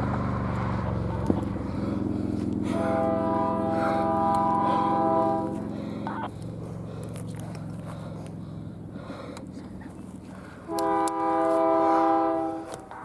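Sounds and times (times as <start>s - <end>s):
diesel locomotive rumbling: 0.0s - 13.0s
train air horn chord: 2.7s - 5.7s, 10.7s - 12.8s.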